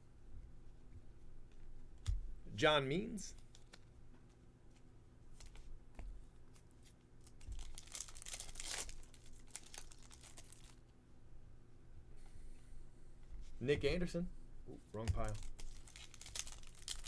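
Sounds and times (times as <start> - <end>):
card pack wrapper crinkling: 7.2 - 10.8, 15.0 - 17.0.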